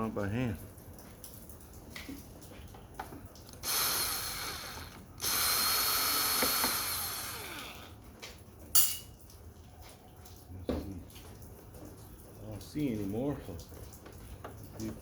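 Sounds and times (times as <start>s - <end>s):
powered screwdriver running: 3.6s - 7.9s.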